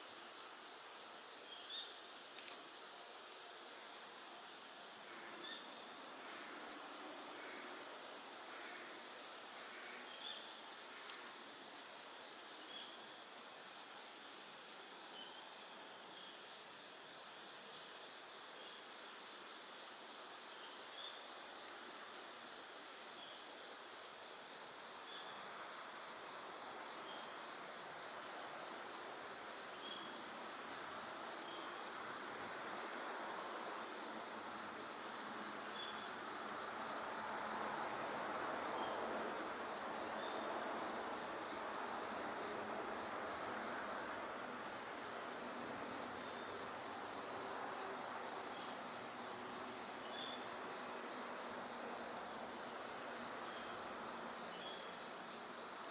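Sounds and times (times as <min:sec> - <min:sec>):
crickets chirping: 0:00.0 - 0:55.9.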